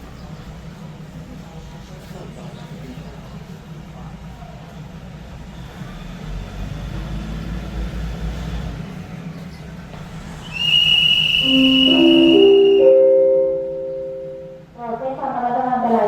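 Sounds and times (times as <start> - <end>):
electronic pa chime: 11.4 - 14.7.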